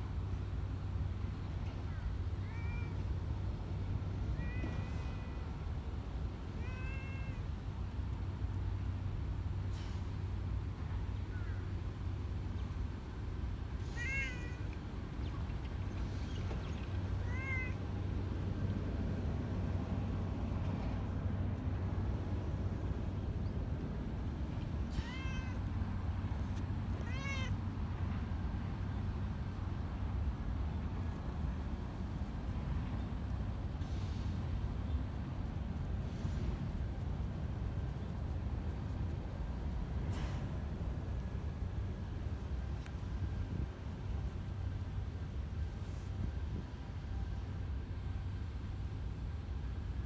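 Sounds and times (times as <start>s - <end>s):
cat meowing: 6.6s - 7.4s, 13.9s - 14.7s, 17.2s - 17.8s, 24.9s - 25.7s, 27.0s - 27.6s
steady low rumble: 7.6s - 50.0s.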